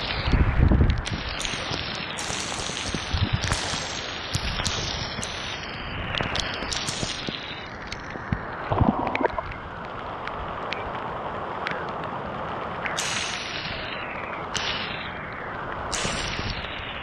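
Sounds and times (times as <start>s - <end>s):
wind buffeting microphone: 0.0s - 1.5s, 2.8s - 3.6s, 8.1s - 11.6s
heavy rain hissing: 0.0s - 11.6s, 12.2s - 17.0s.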